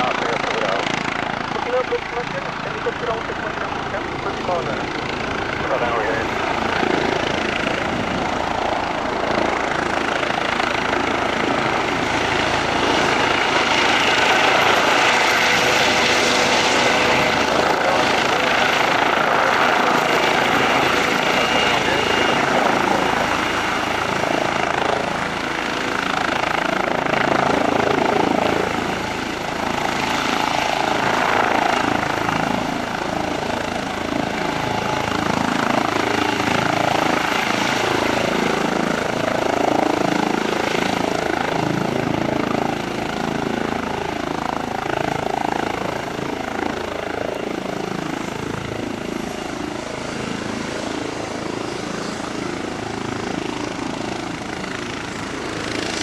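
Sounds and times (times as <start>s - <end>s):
helicopter roar: 0.0s - 56.0s.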